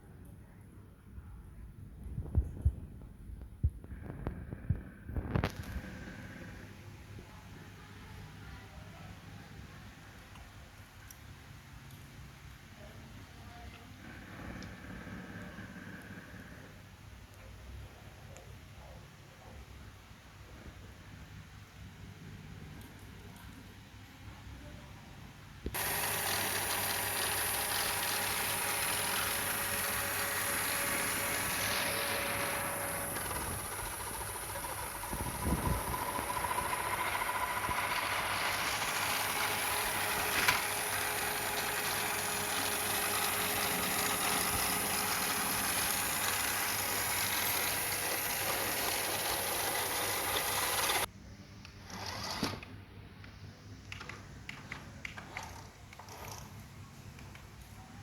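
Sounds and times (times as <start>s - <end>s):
toy car electric motor whirring: 25.7s - 51.1s, 51.8s - 52.7s, 55.2s - 56.6s.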